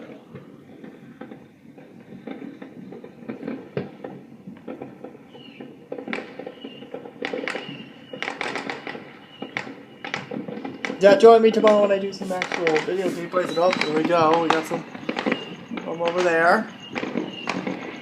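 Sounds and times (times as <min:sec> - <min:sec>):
distant fireworks popping: 0:00.0 - 0:18.0.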